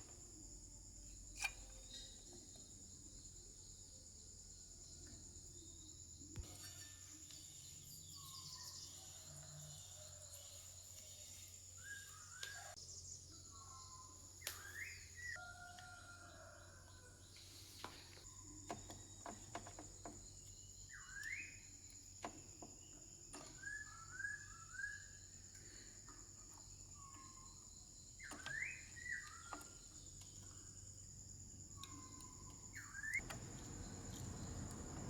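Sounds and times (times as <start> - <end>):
faint bird chirps: 0.0 - 35.0
high insect drone: 0.0 - 35.0
low hum: 33.2 - 35.0.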